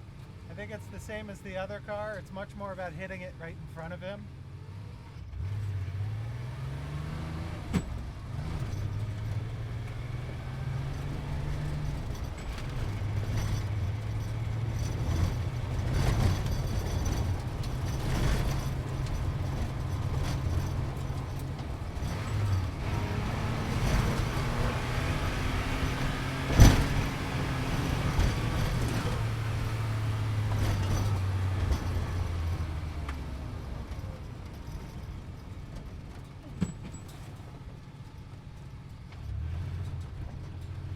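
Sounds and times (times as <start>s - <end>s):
sports car engine revving: 4.4s - 33.5s.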